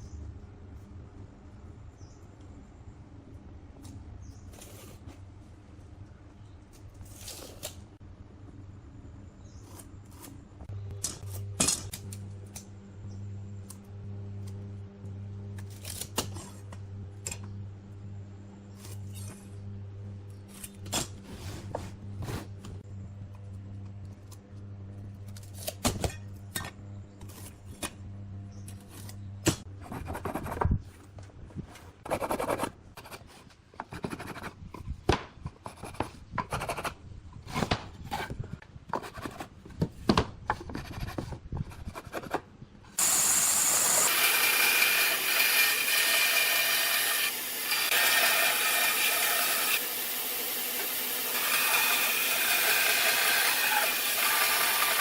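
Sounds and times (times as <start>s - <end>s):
power tool whirring: 43.0s - 55.0s.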